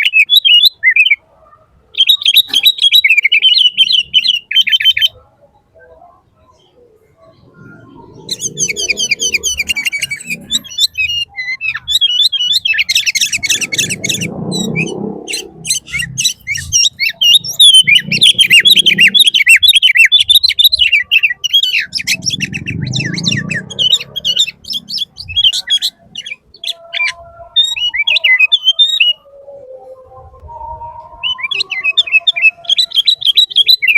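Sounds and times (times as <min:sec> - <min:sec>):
low rumbling noise: 0:07.0 - 0:11.4, 0:12.6 - 0:19.3, 0:20.5 - 0:26.6
small bird chirping: 0:07.4 - 0:29.2.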